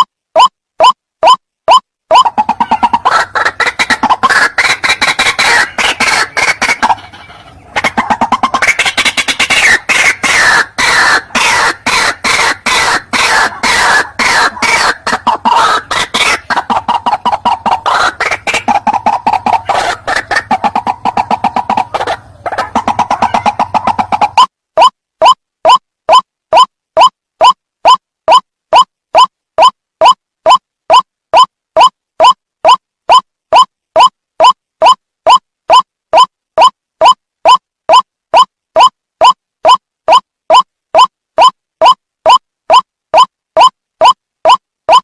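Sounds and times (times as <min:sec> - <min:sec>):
waterhen clucking call: 0:00.0 - 0:45.0.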